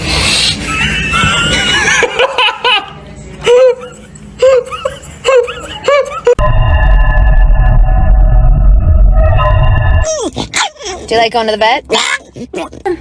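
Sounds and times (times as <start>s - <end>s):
high-pitched laughter: 0.6s - 6.4s.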